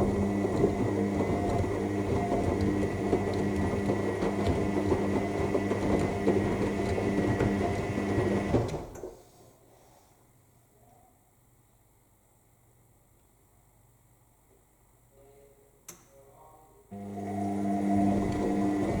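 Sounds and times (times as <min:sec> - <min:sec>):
washing machine motor hum: 0:00.0 - 0:09.0, 0:16.9 - 0:19.0.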